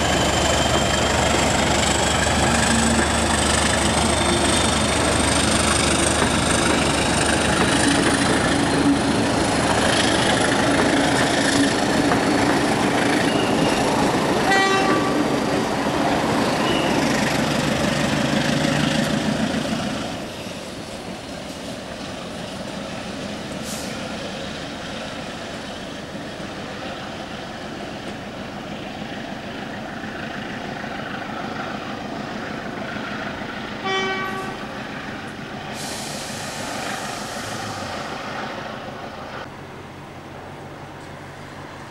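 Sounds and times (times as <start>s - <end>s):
train rumbling by: 0.0s - 41.9s
train horn toot: 14.4s - 15.3s, 33.8s - 34.7s.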